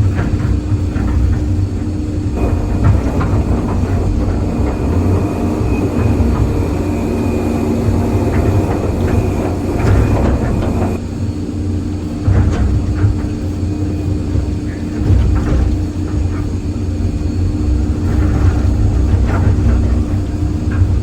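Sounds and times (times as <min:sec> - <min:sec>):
metallic clanking and knocks: 0:00.0 - 0:11.0
excavator diesel engine droning: 0:00.0 - 0:21.0
hydraulic whine: 0:00.0 - 0:21.0.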